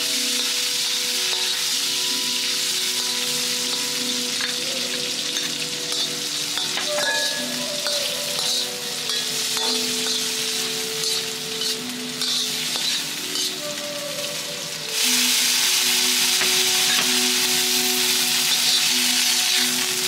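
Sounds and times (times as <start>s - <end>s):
food sizzling in oil: 0.0s - 20.0s
metal ladle scraping wok: 5.2s - 13.8s.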